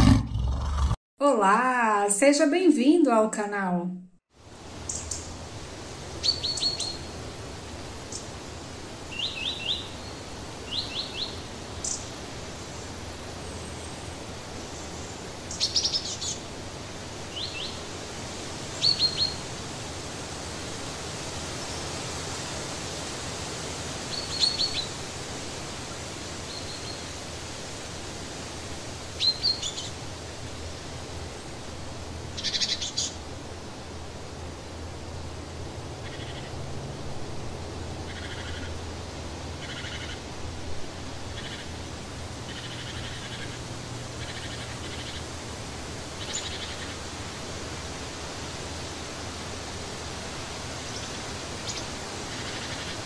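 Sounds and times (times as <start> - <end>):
small birds chirping: 6.1 - 7.2, 9.1 - 12.8, 18.8 - 19.4, 24.1 - 25.0, 32.4 - 33.2, 39.6 - 40.2, 41.3 - 45.3, 46.2 - 47.0
steady background noise: 27.0 - 53.0.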